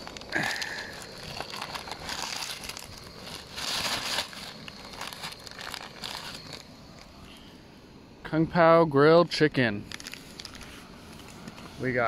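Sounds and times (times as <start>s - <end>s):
meal pouches crinkling: 0.0s - 7.2s, 9.8s - 11.6s.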